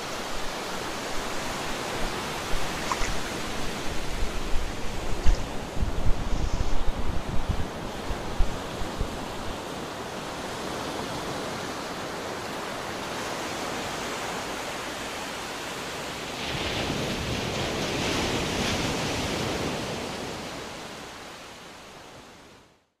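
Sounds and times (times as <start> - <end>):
wind rumbling on microphone: 0.0 - 10.1
small waves washing on beach: 0.0 - 22.6.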